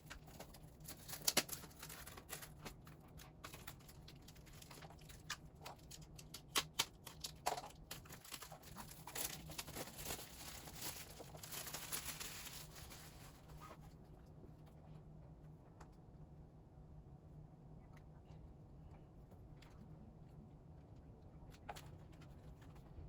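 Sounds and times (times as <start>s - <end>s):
plastic and paper crinkling: 0.0s - 14.0s.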